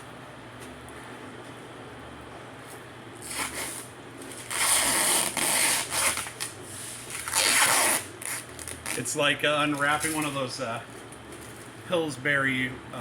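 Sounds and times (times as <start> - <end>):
aluminum sheet rustling and scraping: 3.2 - 11.8.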